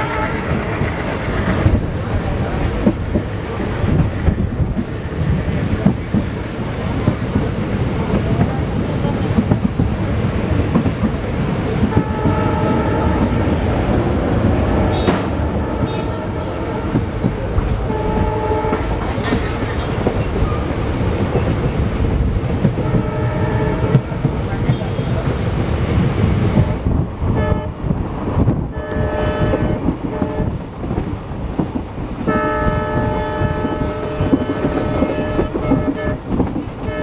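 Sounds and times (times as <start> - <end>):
train horn blasts: 0.0 - 0.7, 11.9 - 13.6, 14.8 - 17.2, 17.8 - 19.2, 22.8 - 25.2, 27.3 - 27.8, 28.7 - 30.6, 32.3 - 37.0
train rumble and rail clatter: 0.0 - 37.0.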